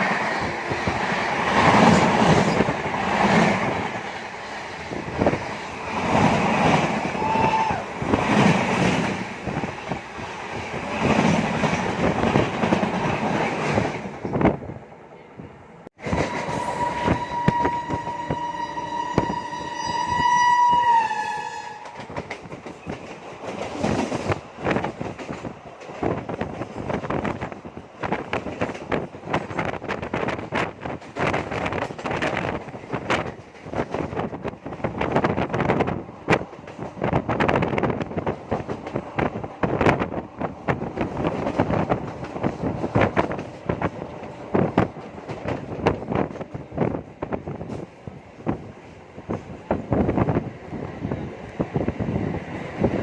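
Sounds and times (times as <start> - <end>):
train wheels clattering on rails: 0.0 - 14.6, 16.0 - 18.4, 21.6 - 53.0
train horn: 16.0 - 22.1.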